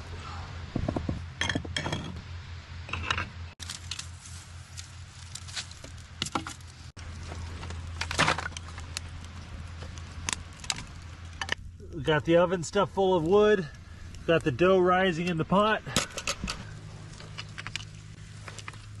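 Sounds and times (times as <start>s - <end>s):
firewood sticks knocking and cracking: 2.9s - 12.1s, 13.3s - 19.0s.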